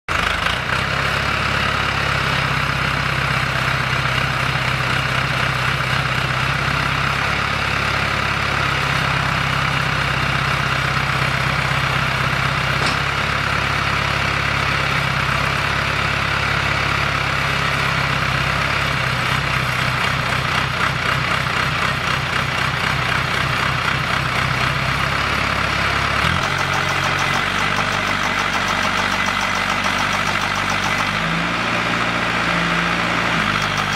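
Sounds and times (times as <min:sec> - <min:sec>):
machine engine running: 0:10.1 - 0:16.7, 0:19.4 - 0:33.9.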